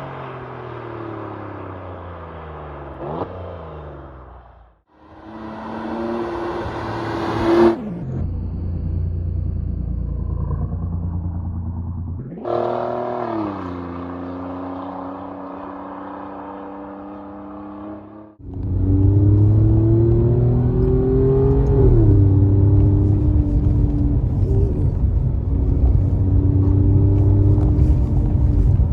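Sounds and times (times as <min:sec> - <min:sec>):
car engine accelerating through gears: 0:05.0 - 0:08.9, 0:10.0 - 0:28.9.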